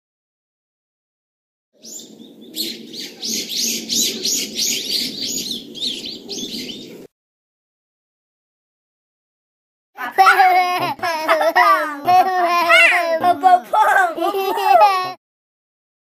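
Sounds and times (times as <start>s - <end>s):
bird chirping: 1.8s - 7.1s.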